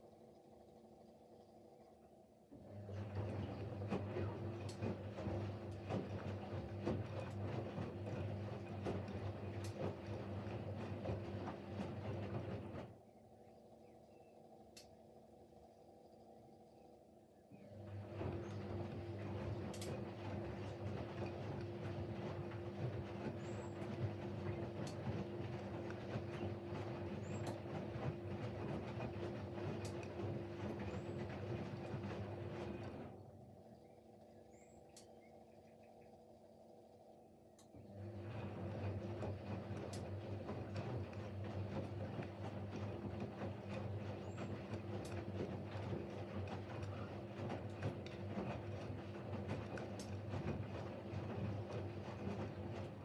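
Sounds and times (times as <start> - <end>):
washing machine motor humming: 2.5 - 13.0, 17.6 - 34.0, 37.7 - 53.0.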